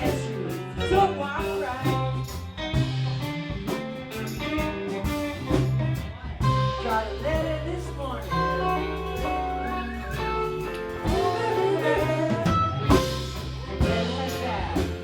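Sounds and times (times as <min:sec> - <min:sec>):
live blues-rock band: 0:00.0 - 0:15.0
electric guitar bending notes: 0:04.4 - 0:14.8.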